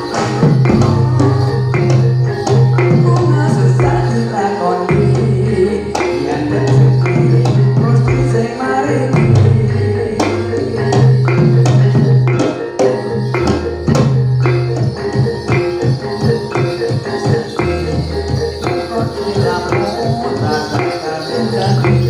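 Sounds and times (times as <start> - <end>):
hand drums: 0.0 - 22.0
jingling percussion: 0.0 - 22.0
melodic line: 0.0 - 22.0
sustained low tones: 0.6 - 4.2.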